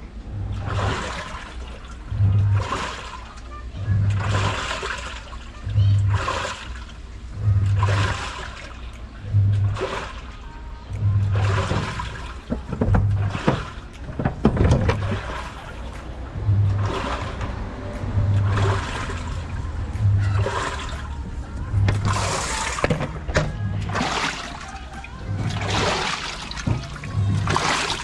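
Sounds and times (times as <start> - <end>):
washing machine motor humming: 0.0 - 28.0
water sloshing and splashing: 0.0 - 28.0.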